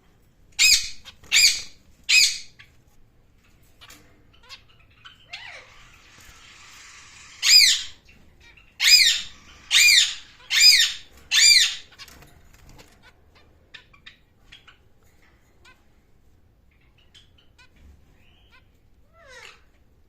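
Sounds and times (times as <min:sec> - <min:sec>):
bird calling loudly: 0:05.1 - 0:08.1, 0:08.7 - 0:12.0.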